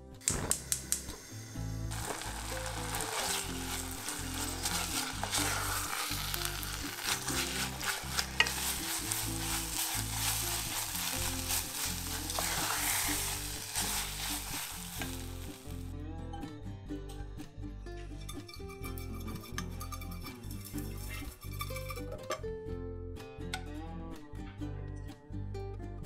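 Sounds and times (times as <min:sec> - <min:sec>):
sauce sizzling in a pot: 0:00.2 - 0:15.9
spatula scraping a pot: 0:01.9 - 0:15.7, 0:18.6 - 0:22.2.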